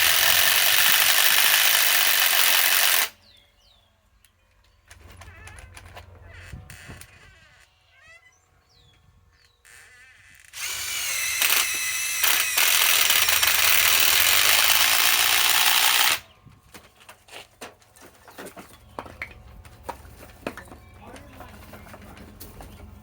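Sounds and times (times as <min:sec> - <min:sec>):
cordless impact wrench running: 0:00.0 - 0:03.2, 0:10.6 - 0:16.3.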